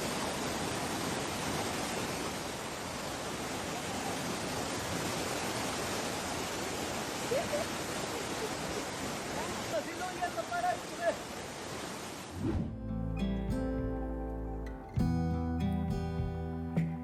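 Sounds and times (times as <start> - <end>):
river water rushing: 0.0 - 13.2.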